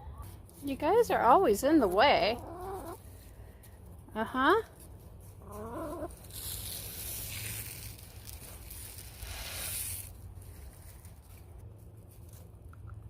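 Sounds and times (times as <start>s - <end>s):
dry rustling and crinkling: 4.6s - 12.7s.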